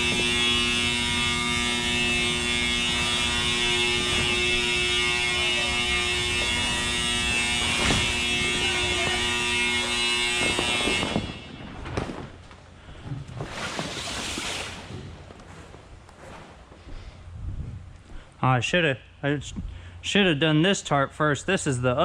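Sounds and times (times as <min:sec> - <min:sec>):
machine motor humming: 0:00.0 - 0:11.5
rustling: 0:09.9 - 0:18.3.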